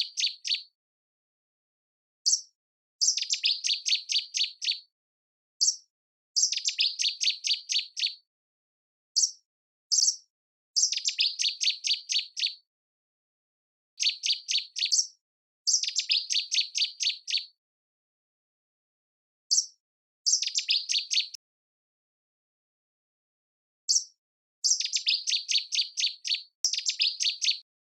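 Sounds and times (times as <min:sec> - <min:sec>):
songbird singing: 0:00.0 - 0:00.7, 0:02.2 - 0:04.9, 0:05.6 - 0:05.8, 0:06.4 - 0:08.2, 0:09.2 - 0:10.2, 0:10.8 - 0:12.6, 0:14.0 - 0:17.6, 0:19.5 - 0:21.4, 0:23.9 - 0:27.7.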